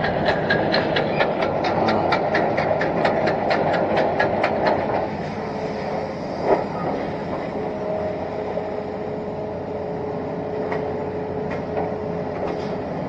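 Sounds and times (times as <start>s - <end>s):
clatter of track cleats: 0.0s - 5.1s
excavator engine running: 0.0s - 13.0s.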